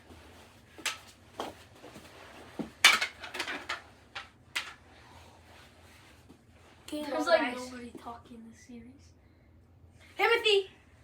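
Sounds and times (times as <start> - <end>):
plastic hockey sticks and ball knocking: 2.6 - 4.8.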